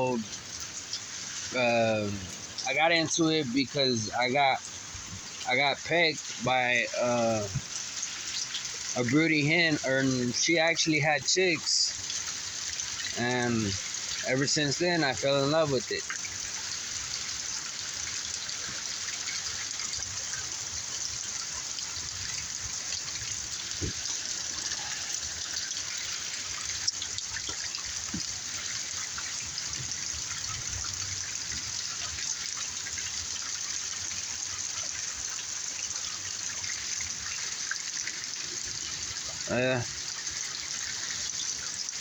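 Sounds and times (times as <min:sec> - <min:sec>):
heavy rain pouring: 0:00.0 - 0:17.0, 0:18.0 - 0:32.3, 0:38.1 - 0:40.3
water running and trickling: 0:00.0 - 0:42.0.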